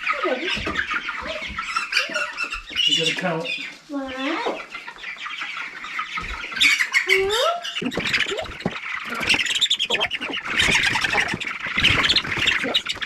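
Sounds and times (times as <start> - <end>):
chickens squawking: 0.0 - 13.0.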